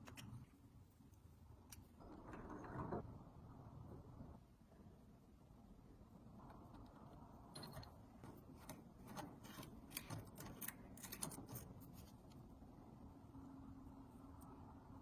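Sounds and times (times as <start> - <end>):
small metal parts clicking: 7.5 - 11.8.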